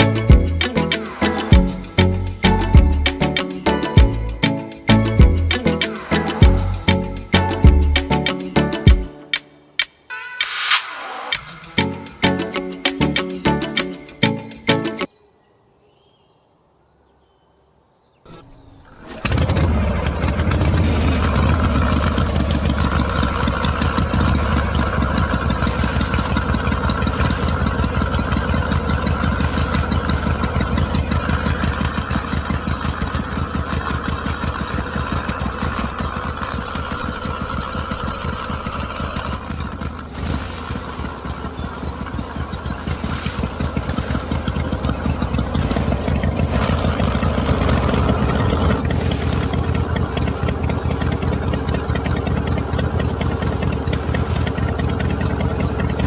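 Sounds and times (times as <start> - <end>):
small engine chugging: 0.0 - 9.1, 11.5 - 15.0, 18.3 - 56.0
high whine: 10.0 - 14.2.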